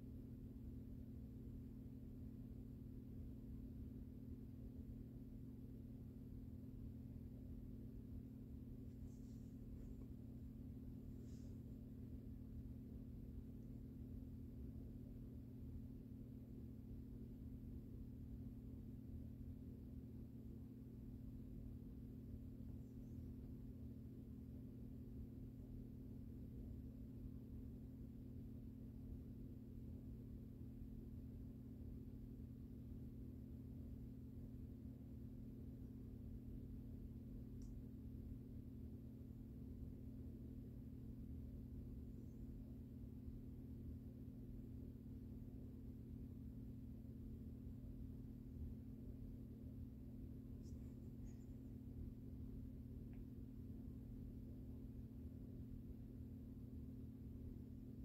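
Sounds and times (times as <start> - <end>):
ceiling fan motor humming: 39.0 - 55.1.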